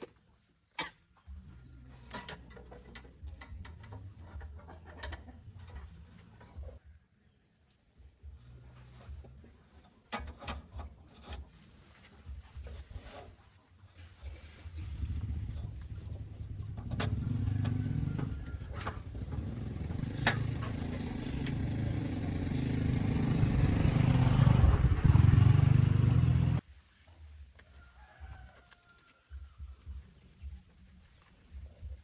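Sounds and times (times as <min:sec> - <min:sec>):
tractor engine running: 0:14.4 - 0:26.6.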